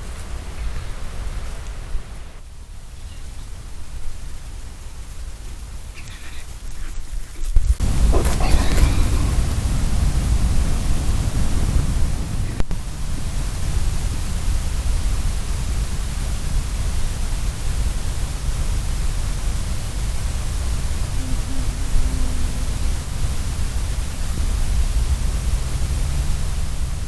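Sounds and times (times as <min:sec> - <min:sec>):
even hiss: 0:00.0 - 0:27.0
low rumble: 0:19.6 - 0:27.0.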